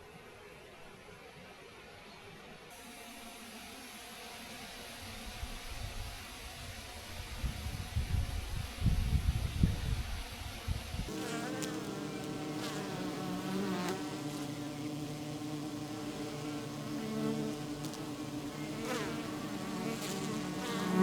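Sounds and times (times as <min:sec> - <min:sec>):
bees flying past: 0:11.1 - 0:21.0
honey bees buzzing: 0:11.1 - 0:21.0.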